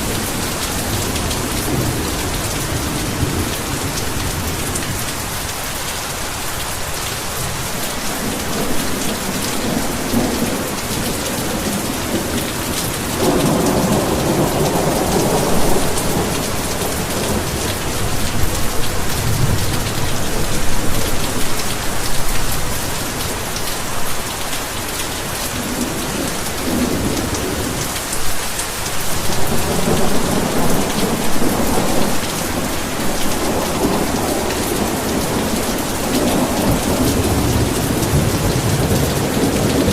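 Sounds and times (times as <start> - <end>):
heavy rain: 0.0 - 39.9
thunder rumbling: 7.5 - 22.1, 29.2 - 39.9.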